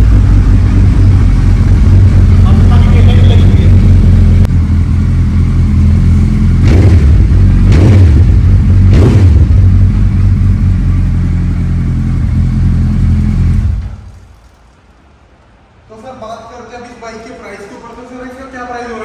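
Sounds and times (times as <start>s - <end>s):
motorcycle engine idling and revving: 0.0s - 14.4s.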